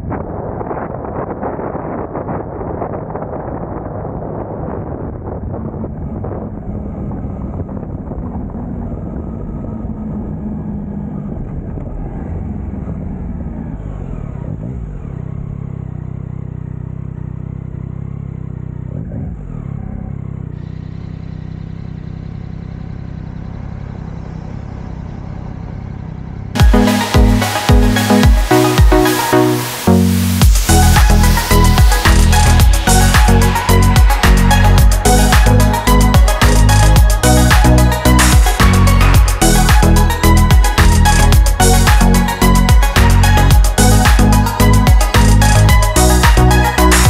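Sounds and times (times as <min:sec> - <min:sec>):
wind rush: 0:00.0 - 0:11.8
motorcycle engine running: 0:00.0 - 0:47.0.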